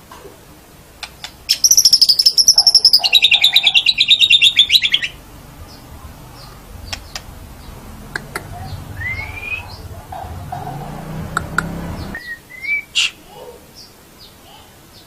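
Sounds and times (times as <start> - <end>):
bird singing a rattling trill: 1.5 - 11.0.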